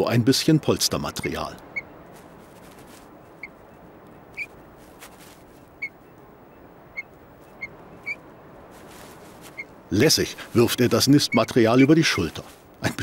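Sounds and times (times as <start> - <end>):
faint background hiss: 0.0 - 13.0
bird high peeps: 3.2 - 4.6, 5.2 - 9.8, 11.2 - 12.0.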